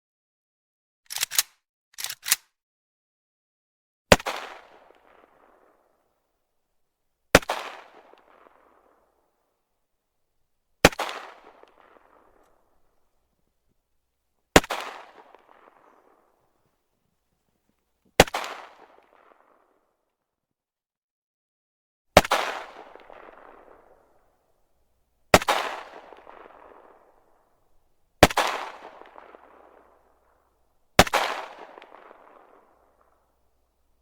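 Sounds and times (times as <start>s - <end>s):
rifle shots echoing: 4.1s - 5.6s, 7.4s - 8.8s, 10.8s - 13.1s, 14.5s - 16.3s, 18.2s - 19.3s, 22.2s - 24.3s, 25.2s - 33.6s.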